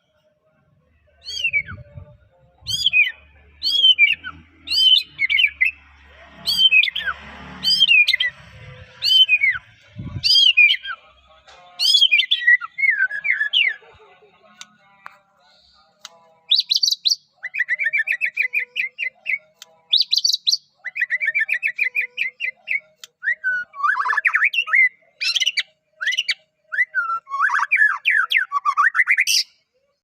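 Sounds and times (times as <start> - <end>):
songbird whistling song: 1.2 - 5.8, 6.4 - 11.0, 11.8 - 13.8, 16.5 - 29.6.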